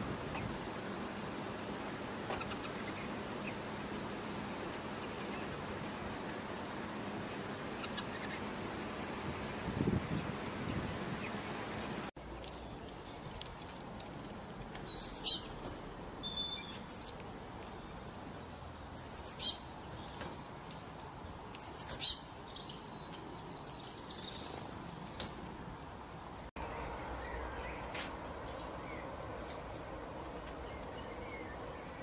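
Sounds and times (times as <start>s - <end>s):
songbird singing: 14.3s - 32.0s
bird twittering: 14.8s - 17.9s, 19.0s - 20.4s, 21.6s - 25.4s.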